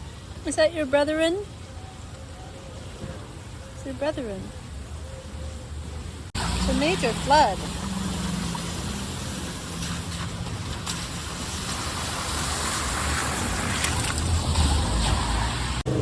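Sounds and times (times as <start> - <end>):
low traffic rumble: 0.0 - 16.0
heavy rain and floodwater rushing: 6.0 - 16.0.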